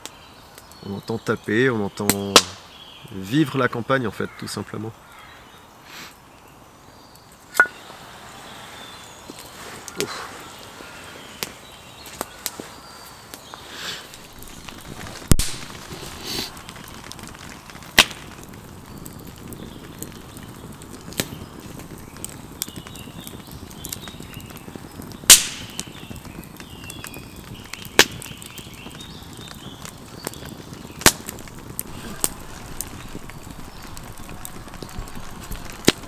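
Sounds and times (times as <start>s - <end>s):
campfire popping: 0.0s - 36.0s.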